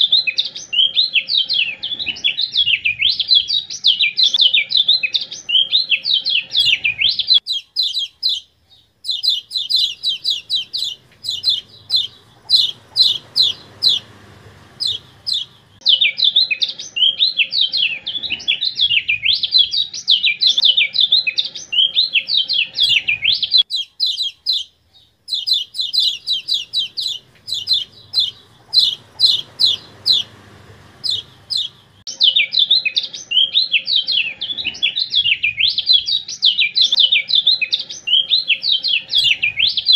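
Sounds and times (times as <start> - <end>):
bird chirping rapidly: 0.0 - 18.0, 18.6 - 34.3, 35.0 - 39.9.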